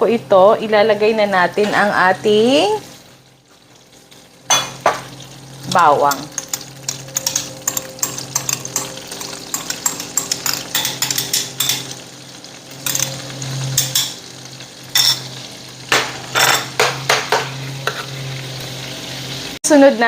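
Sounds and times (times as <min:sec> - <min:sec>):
garlic frying in a pan: 0:00.0 - 0:20.0
utensil scraping a pan: 0:16.1 - 0:18.3.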